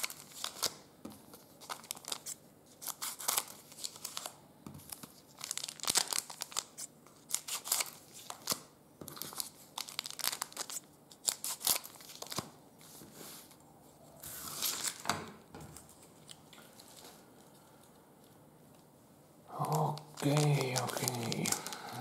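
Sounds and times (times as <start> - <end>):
card wrappers crinkling: 0.0 - 12.6, 14.3 - 15.1, 19.5 - 22.0.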